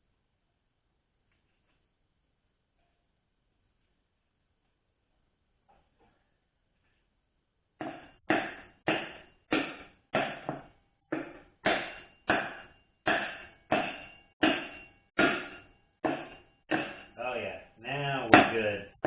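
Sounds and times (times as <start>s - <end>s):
hammer tapping metal part: 7.8s - 17.2s.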